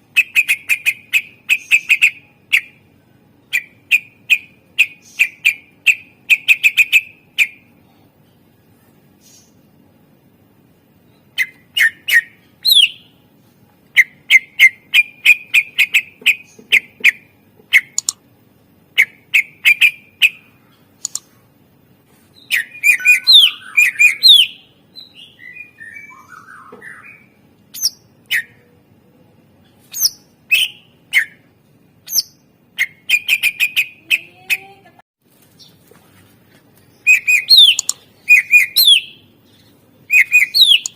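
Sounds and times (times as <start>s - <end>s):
bird singing: 0.1s - 7.6s, 11.0s - 13.2s, 22.4s - 34.7s, 36.8s - 40.9s.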